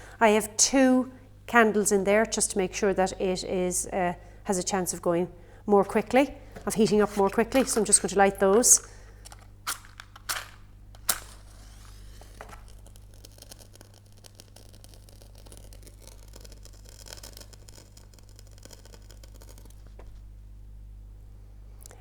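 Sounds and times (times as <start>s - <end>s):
candle crackly hiss: 11.0s - 20.3s.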